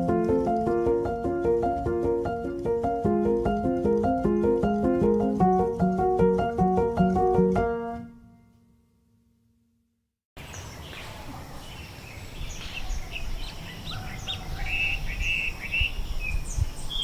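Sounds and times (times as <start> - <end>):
birds chirping: 10.4 - 17.0
steady background hiss: 10.4 - 17.0.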